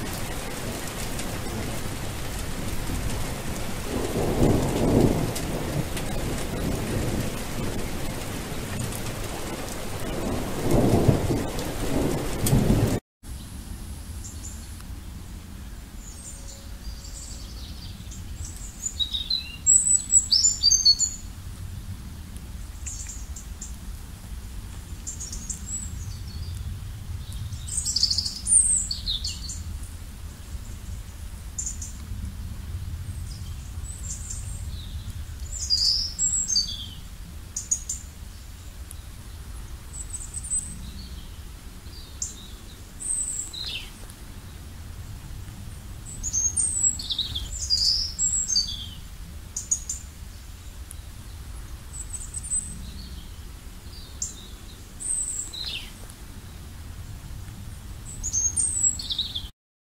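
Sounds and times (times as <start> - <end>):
birds chirping and whistling: 16.0 - 21.2, 34.0 - 37.0, 46.1 - 49.0, 58.1 - 59.5
faint low rumble: 21.1 - 59.5.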